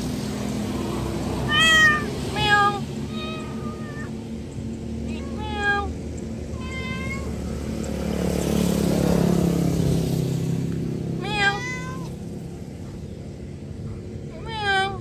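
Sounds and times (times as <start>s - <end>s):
motor passing: 0.0s - 15.0s
cat meowing: 1.4s - 4.2s, 5.0s - 5.9s, 6.5s - 7.4s, 11.2s - 12.2s, 14.3s - 15.0s.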